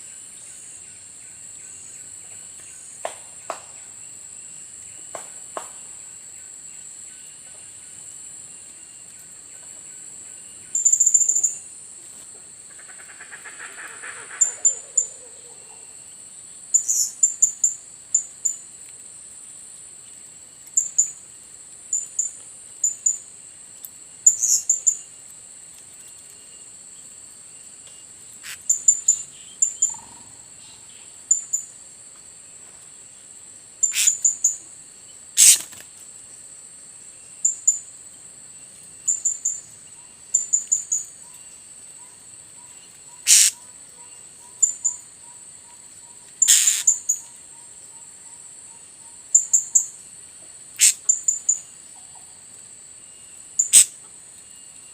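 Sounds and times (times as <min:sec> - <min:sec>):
insect drone: 0:00.0 - 0:54.9
parrots high-pitched calls: 0:33.8 - 0:34.4, 0:35.4 - 0:35.7, 0:43.2 - 0:43.6, 0:46.4 - 0:47.2, 0:50.8 - 0:51.2, 0:53.6 - 0:53.9.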